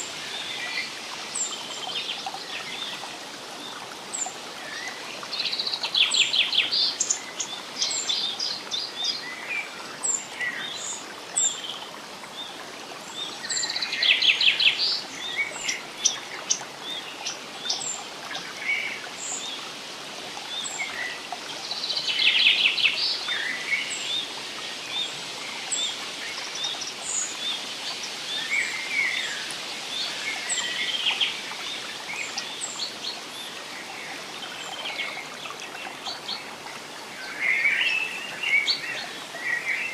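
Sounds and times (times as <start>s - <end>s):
flowing water: 0.0s - 39.9s
songbirds singing: 20.4s - 39.9s.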